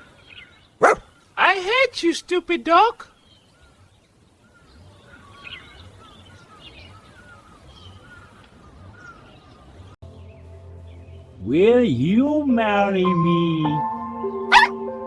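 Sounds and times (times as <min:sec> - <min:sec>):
bird chirping: 0:00.0 - 0:01.6, 0:02.4 - 0:11.6.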